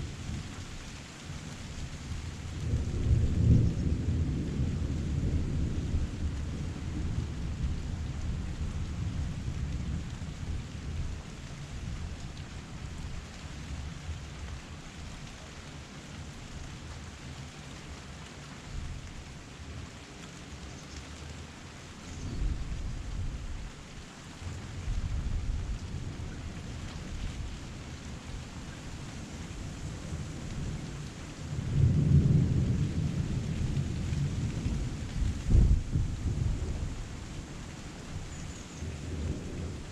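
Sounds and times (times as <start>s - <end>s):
heavy rain falling: 0.0s - 39.9s
low rumble of thunder: 1.8s - 15.0s, 22.1s - 23.8s, 24.4s - 39.9s
rolling thunder: 2.6s - 10.2s, 31.5s - 37.1s.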